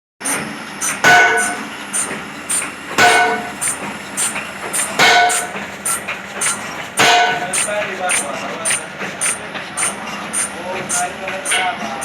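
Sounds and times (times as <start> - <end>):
ringing metallic clang: 1.0 - 1.7, 3.0 - 3.6, 5.0 - 5.6, 7.0 - 7.8.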